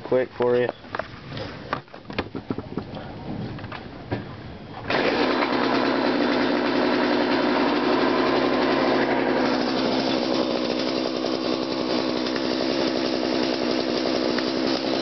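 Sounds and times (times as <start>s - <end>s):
chainsaw engine running: 4.9s - 15.0s.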